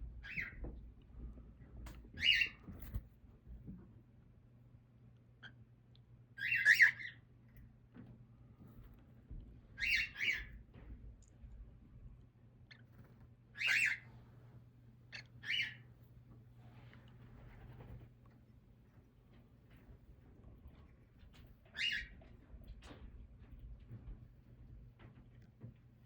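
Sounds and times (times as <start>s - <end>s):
faint low hum: 0.0s - 26.0s
cockatiel chick raspy calls: 6.4s - 7.2s, 9.8s - 10.5s, 13.6s - 14.0s, 15.1s - 15.8s.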